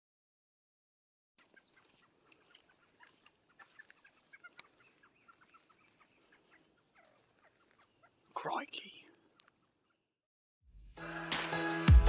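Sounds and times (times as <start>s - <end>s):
bird chips and clucks: 1.4s - 8.4s.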